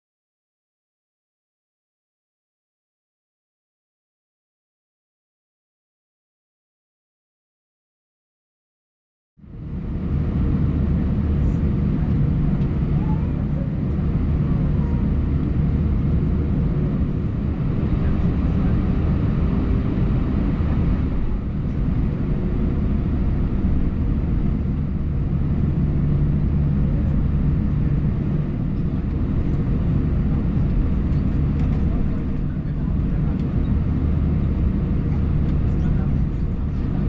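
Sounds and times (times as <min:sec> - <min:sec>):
airplane cabin engine hum: 0:09.4 - 0:37.0.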